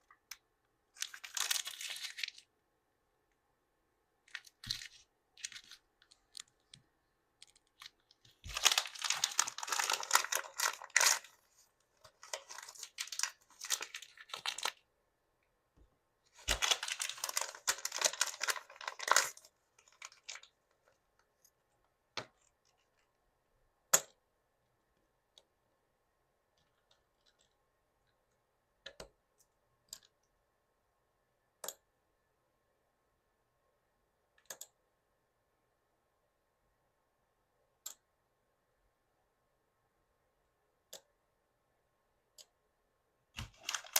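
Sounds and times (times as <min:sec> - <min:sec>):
plastic packaging crinkling: 0:01.0 - 0:02.5, 0:04.3 - 0:06.6, 0:07.4 - 0:14.8, 0:16.4 - 0:21.0, 0:43.4 - 0:43.9.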